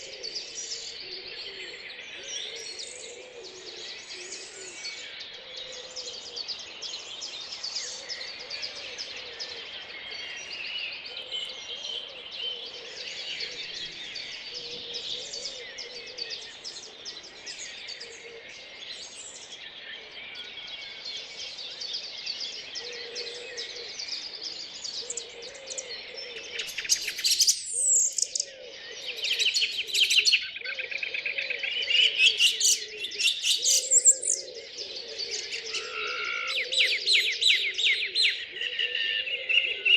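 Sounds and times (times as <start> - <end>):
songbirds singing: 0.0 - 39.9
bird singing fast trills: 26.6 - 30.6, 31.6 - 34.5, 35.4 - 39.8.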